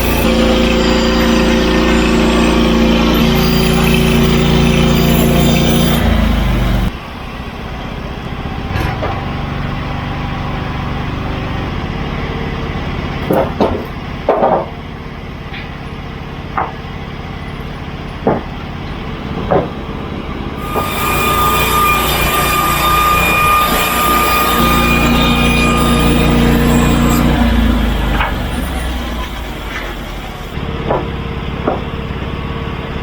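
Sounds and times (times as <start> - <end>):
steady high whine: 0.0 - 8.6, 19.0 - 30.8
sawmill engine running: 0.0 - 33.0
wooden knocks and clunks: 13.2 - 14.9, 16.5 - 17.0, 18.2 - 20.0, 30.8 - 32.0.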